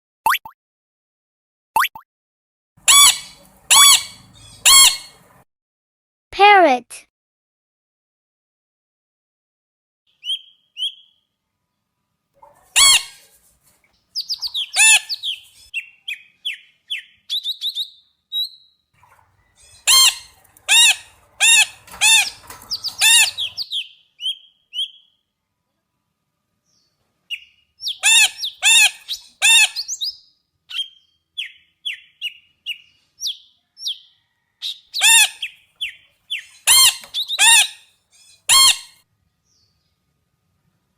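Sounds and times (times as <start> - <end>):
parrot squawking: 2.8 - 5.3, 12.5 - 13.2, 14.2 - 15.4, 19.6 - 23.7, 27.9 - 30.1, 34.9 - 39.0.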